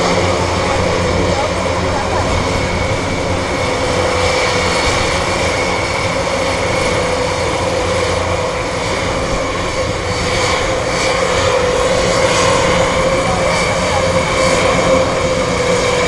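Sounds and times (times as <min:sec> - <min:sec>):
aircraft engines rumbling: 0:00.0 - 0:16.0
high engine whine: 0:00.0 - 0:16.0.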